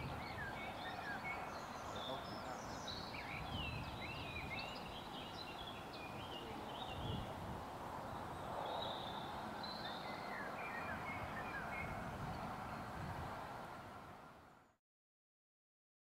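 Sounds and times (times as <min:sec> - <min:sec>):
small birds chirping: 0:00.0 - 0:07.4, 0:08.0 - 0:13.2.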